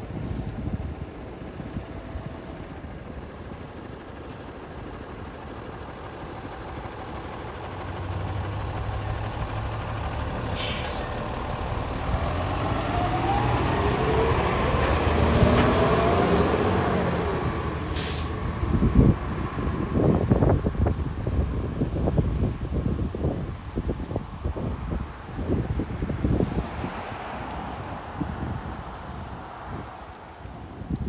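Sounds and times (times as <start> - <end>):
wind on microphone: 0.0 - 3.3, 10.6 - 31.0
fire engine diesel engine: 0.0 - 31.0
short hisses: 10.5 - 11.1, 17.9 - 18.4.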